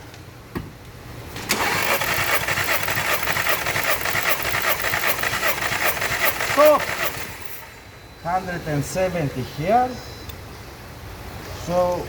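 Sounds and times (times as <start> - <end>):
starter motor cranking engine: 1.3 - 8.0.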